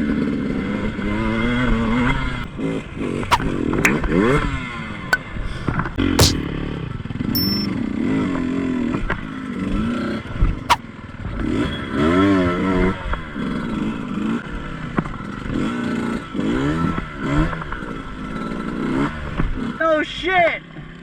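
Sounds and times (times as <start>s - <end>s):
sharp knocks and clatter: 6.2s - 6.4s.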